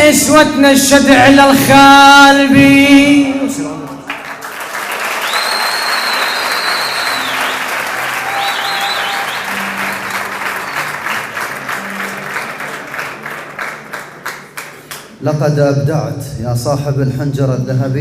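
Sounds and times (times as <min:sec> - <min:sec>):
audience applauding: 0:03.9 - 0:15.2
high whistles: 0:05.0 - 0:11.3.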